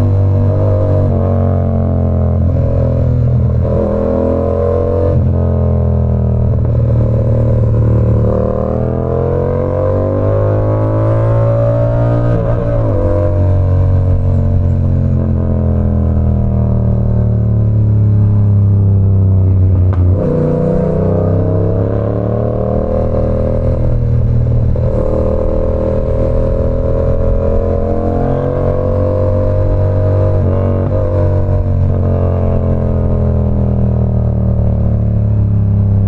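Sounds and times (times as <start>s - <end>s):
motorcycle engine running: 1.9s - 9.5s.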